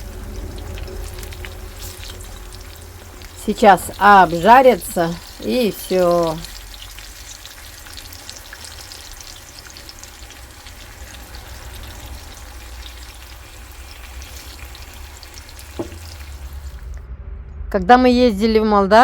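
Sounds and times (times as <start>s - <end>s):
food sizzling in a pan: 0.0s - 17.0s
single knock: 15.8s - 16.0s.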